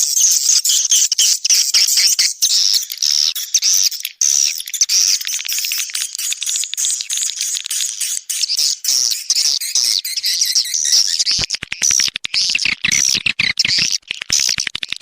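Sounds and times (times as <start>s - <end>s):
birds chirping and twittering: 0.0s - 14.7s.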